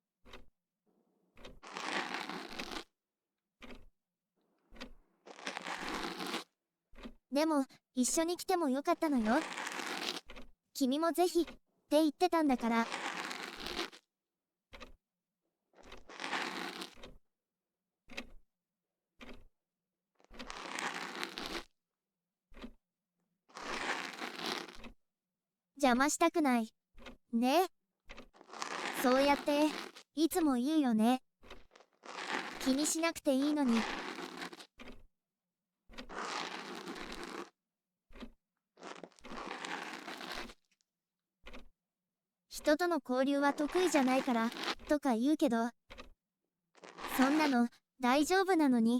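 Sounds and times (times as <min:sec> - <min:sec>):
ear pick scraping inside ear: 0:01.4 - 0:02.9, 0:04.8 - 0:07.1, 0:09.2 - 0:10.4, 0:12.8 - 0:14.0, 0:15.9 - 0:17.1, 0:20.3 - 0:21.7, 0:23.5 - 0:24.9, 0:28.1 - 0:30.1, 0:31.4 - 0:35.0, 0:35.9 - 0:37.5, 0:38.1 - 0:40.7, 0:43.6 - 0:45.0.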